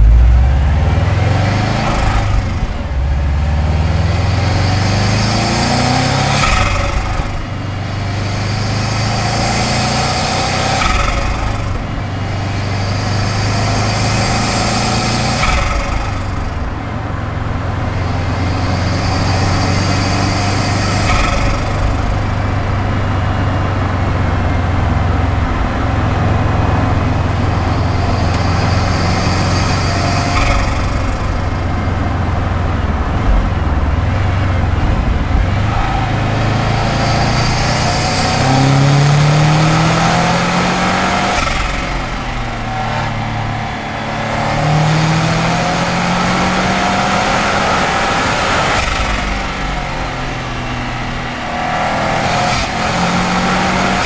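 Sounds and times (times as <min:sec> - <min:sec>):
turbo flutter: 0:00.0 - 0:04.5, 0:26.6 - 0:42.5
car engine accelerating: 0:00.0 - 0:54.0.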